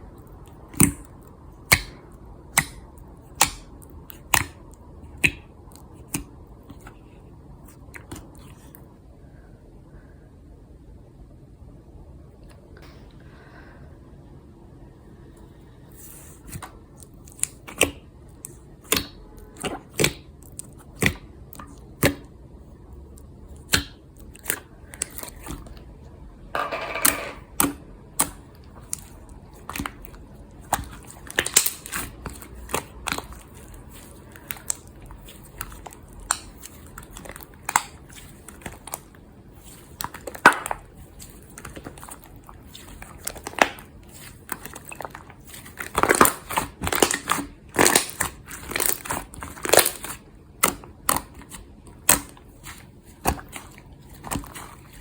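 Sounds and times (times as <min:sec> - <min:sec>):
slime squeezed popping and crackling: 0:27.5 - 0:55.0.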